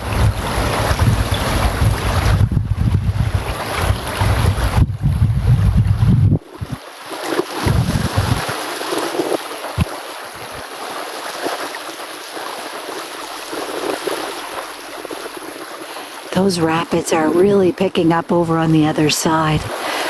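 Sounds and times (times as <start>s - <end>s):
wind buffeting microphone: 0.0s - 6.8s, 7.6s - 8.5s.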